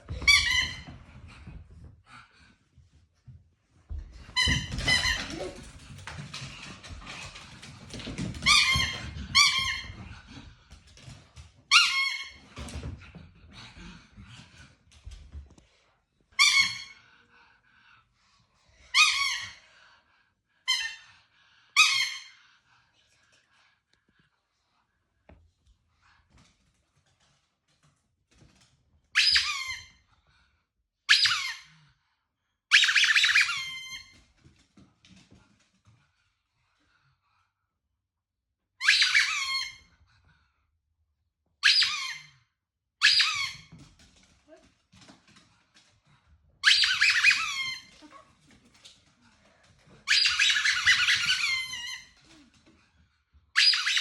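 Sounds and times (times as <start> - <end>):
squeaky toy squeaking: 29.2 - 29.9, 32.7 - 34.0, 38.8 - 39.8, 41.6 - 42.3, 43.0 - 43.7, 46.6 - 48.0, 50.1 - 52.2, 53.6 - 54.0.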